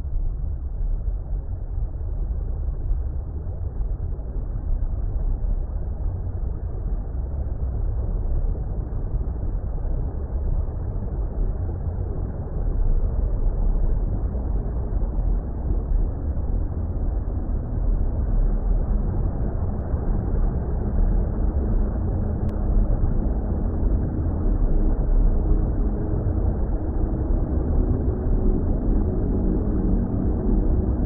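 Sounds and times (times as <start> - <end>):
deep underwater rumble: 10.5 - 31.0.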